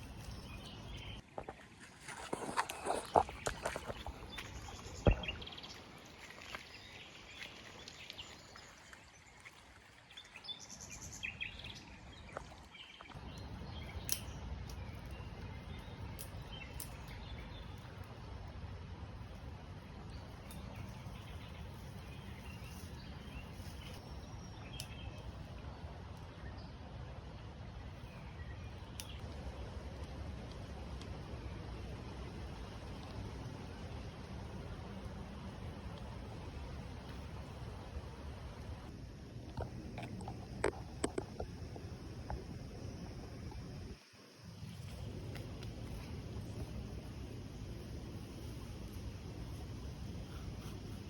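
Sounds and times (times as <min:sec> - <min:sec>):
small birds chirping: 0:00.0 - 0:01.2, 0:02.3 - 0:09.5, 0:10.1 - 0:18.2, 0:20.0 - 0:25.5
steady low rumbling: 0:29.2 - 0:51.0.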